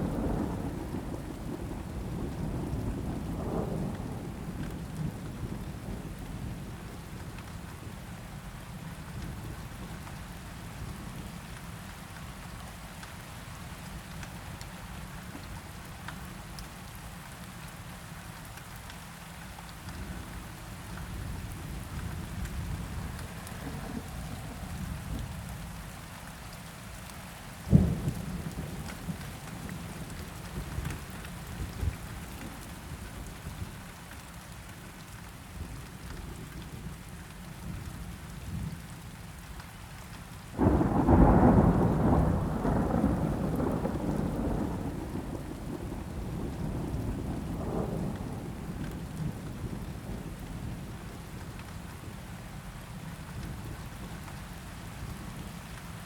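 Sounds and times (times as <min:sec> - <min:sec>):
steady rain: 0:00.0 - 0:56.0
rolling thunderclap: 0:22.2 - 0:25.6, 0:27.7 - 0:29.9, 0:40.6 - 0:50.8.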